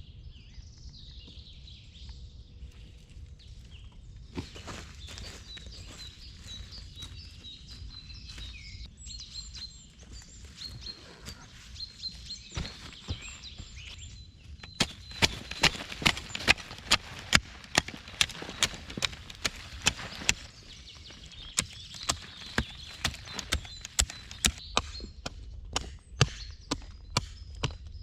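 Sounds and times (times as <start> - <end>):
small birds chirping: 0.0 - 28.0
loud footsteps: 4.3 - 8.9, 9.6 - 24.9.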